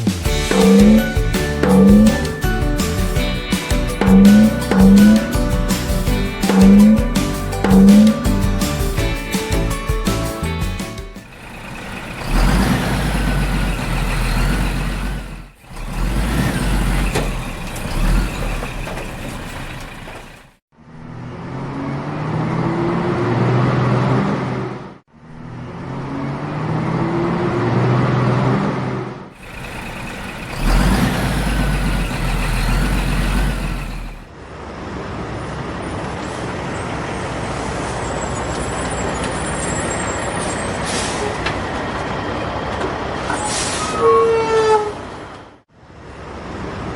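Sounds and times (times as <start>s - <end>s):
engine revving up: 0.0s - 8.9s, 11.2s - 20.6s, 25.6s - 34.3s
truck engines: 0.0s - 46.9s.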